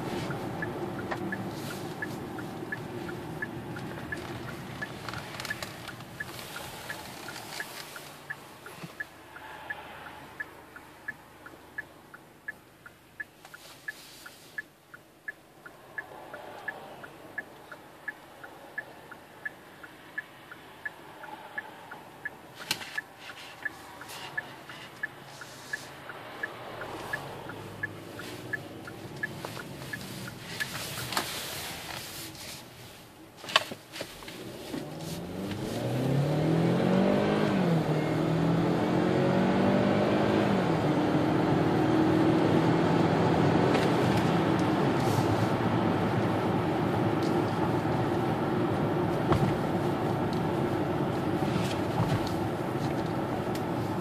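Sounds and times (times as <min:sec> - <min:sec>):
car engine accelerating: 0:00.0 - 0:11.8, 0:23.2 - 0:31.1, 0:34.2 - 0:54.0
turn signal ticking: 0:00.0 - 0:54.0.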